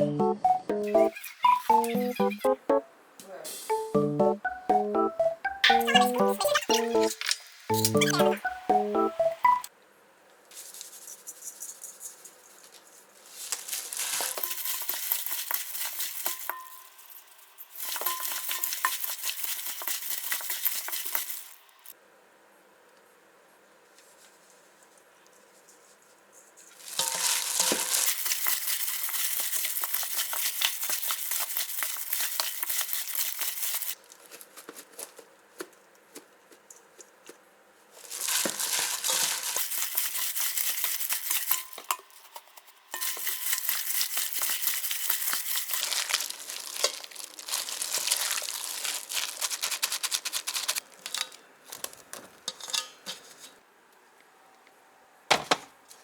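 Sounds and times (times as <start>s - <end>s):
plastic packaging crinkling: 10.5s - 22.0s, 26.6s - 35.4s, 37.9s - 52.5s.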